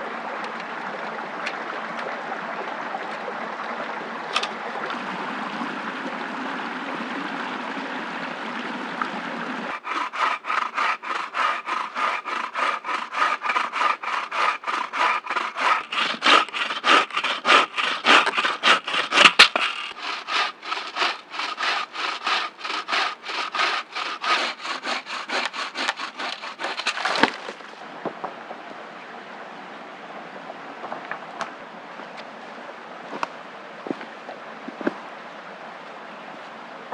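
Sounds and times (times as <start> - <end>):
hand saw cutting wood: 9.7 - 27.8.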